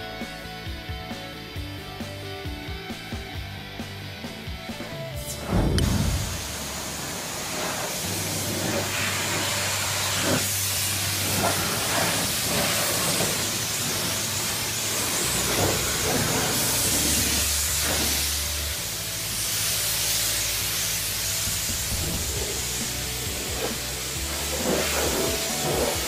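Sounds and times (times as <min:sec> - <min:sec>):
pressure washer spraying water: 0:05.2 - 0:26.0.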